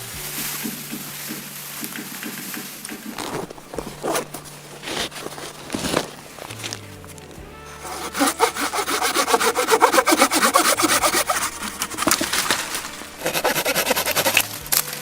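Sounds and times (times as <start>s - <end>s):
saw cutting wood: 2.8s - 6.4s, 7.7s - 14.7s.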